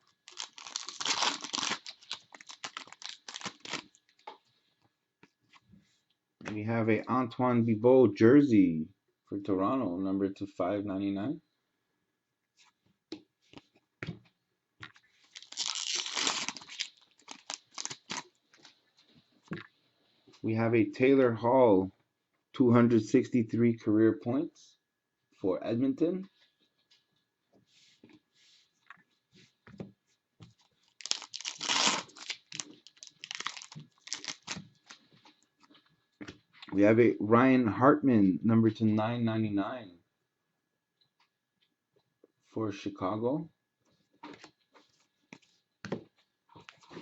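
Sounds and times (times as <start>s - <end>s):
card pack wrapper tearing: 0.2s - 4.0s, 15.3s - 18.3s, 30.9s - 34.7s.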